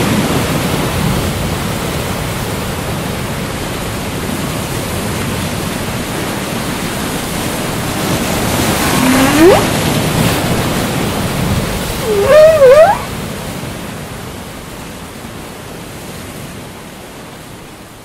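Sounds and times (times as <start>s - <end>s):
ocean hiss: 6.5s - 13.2s
whale song: 8.0s - 10.0s, 11.9s - 13.2s.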